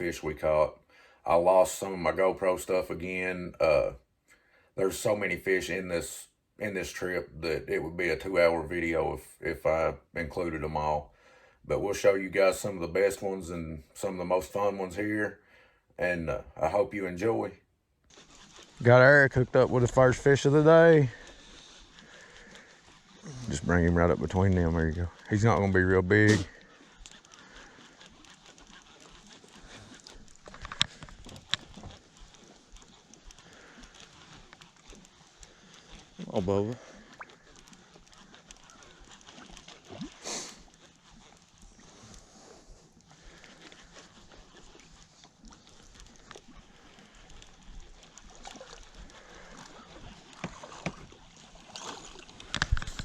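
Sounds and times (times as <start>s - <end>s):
water sloshing against boat hull: 18.1s - 53.0s
faint scattered clatter: 23.9s - 36.2s
small clicks and knocks: 30.4s - 32.0s, 52.4s - 53.0s.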